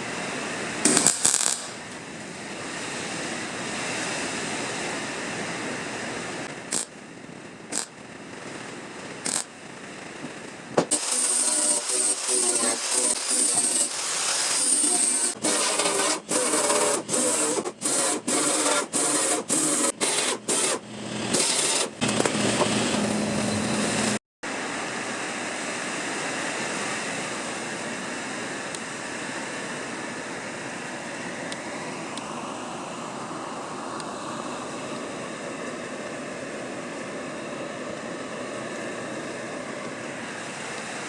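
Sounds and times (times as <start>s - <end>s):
power tool on sheet metal: 0.8s - 2.0s, 6.4s - 6.9s, 7.7s - 8.0s, 9.2s - 9.5s, 10.8s - 24.2s.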